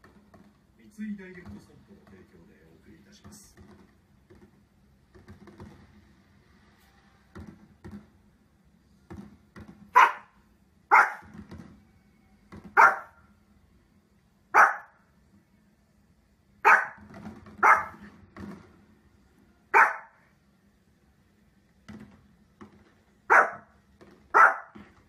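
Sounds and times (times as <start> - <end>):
dog barking: 9.9 - 11.3, 12.7 - 13.2, 14.5 - 15.0, 16.6 - 18.1, 19.7 - 20.2, 23.3 - 23.7, 24.3 - 24.8.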